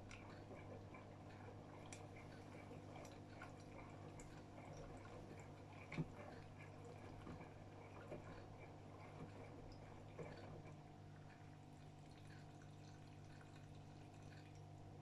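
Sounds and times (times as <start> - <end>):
washing machine low hum: 0.0 - 15.0
water dripping and trickling: 11.1 - 15.0.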